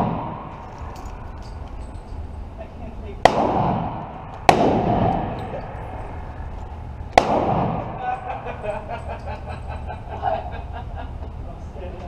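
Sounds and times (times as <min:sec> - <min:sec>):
echoing gunshots: 0:00.0 - 0:00.7, 0:03.2 - 0:05.9, 0:06.8 - 0:08.2.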